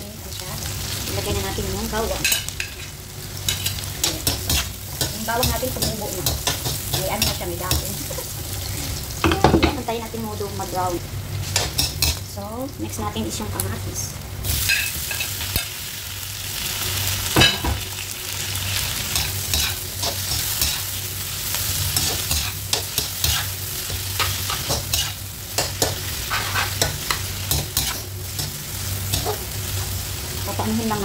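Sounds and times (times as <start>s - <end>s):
vegetables sizzling in oil: 0.0s - 31.0s.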